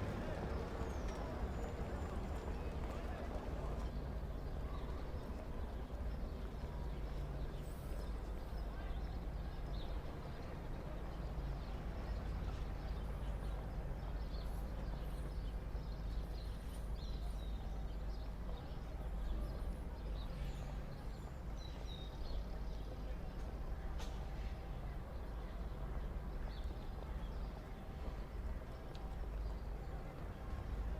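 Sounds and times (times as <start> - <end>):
low street rumble: 0.0 - 30.9.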